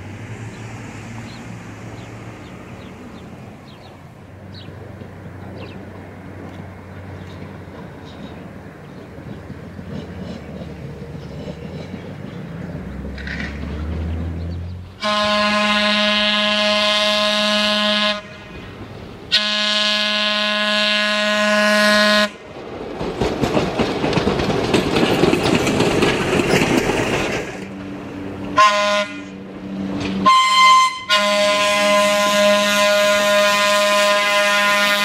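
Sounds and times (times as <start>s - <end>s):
trolley car rumbling on rails: 0.0s - 35.0s
trolley car horn blasts: 15.0s - 22.5s, 28.5s - 29.4s, 30.2s - 35.0s.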